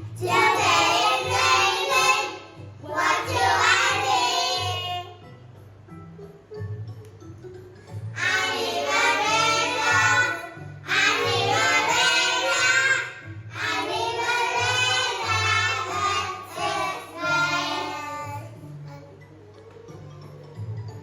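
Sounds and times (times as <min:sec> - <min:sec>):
child singing: 0:00.2 - 0:05.2, 0:08.2 - 0:18.6.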